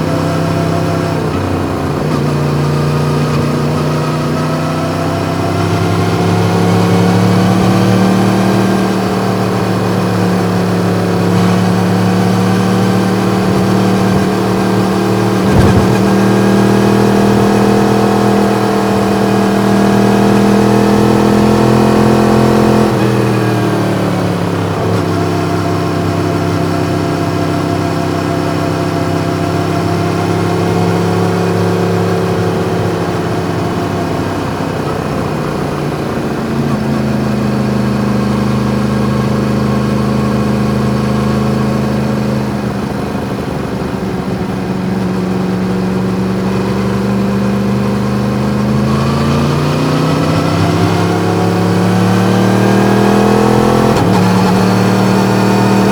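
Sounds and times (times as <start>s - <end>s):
motorcycle engine running: 0.0s - 55.9s
brief thump: 15.4s - 16.6s.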